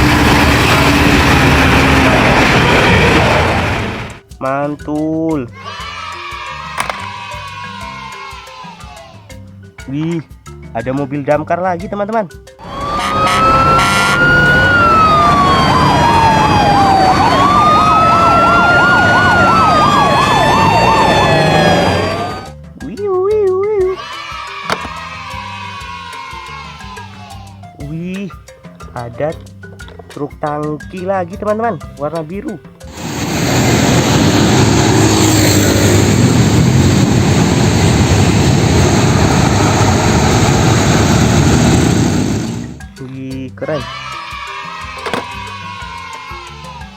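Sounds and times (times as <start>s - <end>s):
siren fast warble: 12.6s - 22.6s
siren slow wail: 12.6s - 22.6s.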